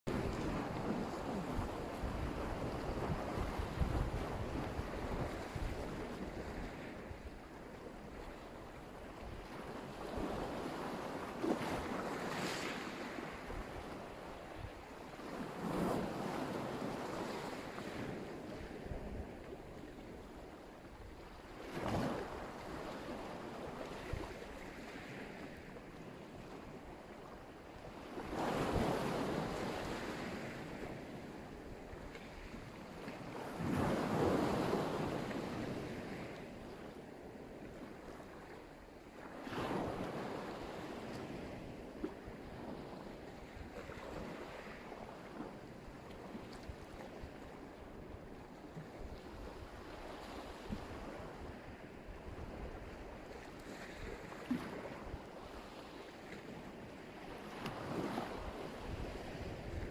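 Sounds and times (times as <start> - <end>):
waves breaking on shore: 0.1 - 59.9.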